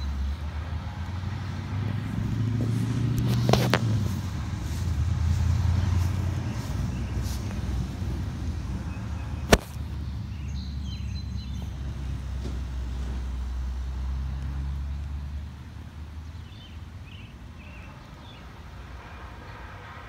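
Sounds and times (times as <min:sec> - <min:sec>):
motor vehicle rumble: 0:00.0 - 0:20.0
sharp click: 0:09.5 - 0:09.8.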